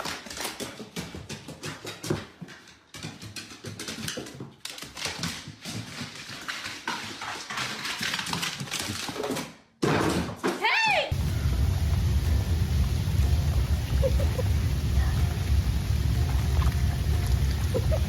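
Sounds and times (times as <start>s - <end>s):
dog claws tapping on hard floor: 0.0s - 9.6s.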